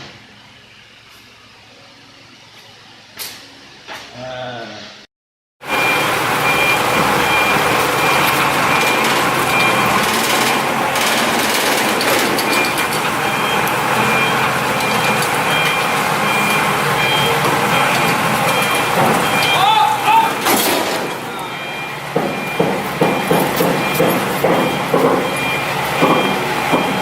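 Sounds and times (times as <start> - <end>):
loud engine noise: 5.6 - 27.0
reversing alarm beeps: 5.7 - 20.4, 21.0 - 27.0.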